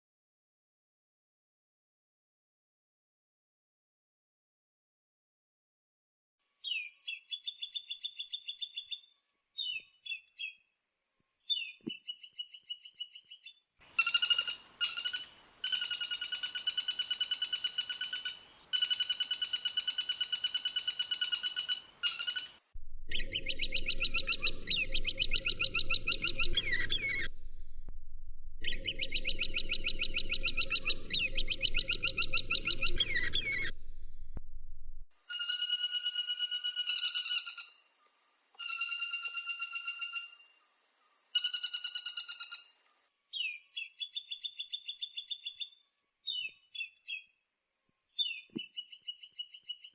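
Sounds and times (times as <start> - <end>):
background hiss or rumble: 13.8 - 15.7, 21.8 - 35.1
woodpecker rattling calls: 13.9 - 27.3, 28.6 - 33.7.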